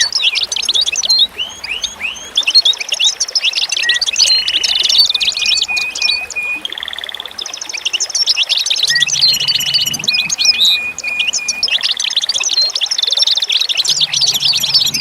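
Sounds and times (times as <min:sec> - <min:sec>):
songbirds chirping and trilling: 0:00.0 - 0:15.0.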